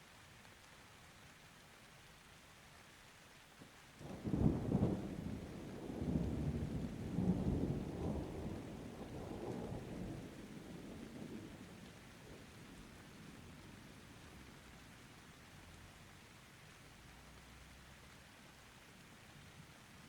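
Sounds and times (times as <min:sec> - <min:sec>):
rain hiss: 0:00.0 - 0:20.0
thunder rumble: 0:04.1 - 0:12.5.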